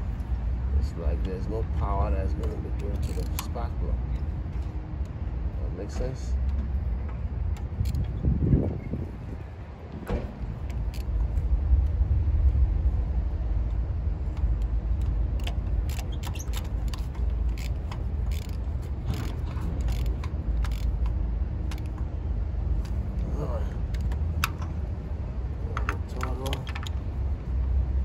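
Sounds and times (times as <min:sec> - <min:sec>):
low rumble: 0:03.7 - 0:28.0
tools clicking and tapping: 0:14.3 - 0:22.1, 0:23.9 - 0:24.8, 0:25.7 - 0:27.1.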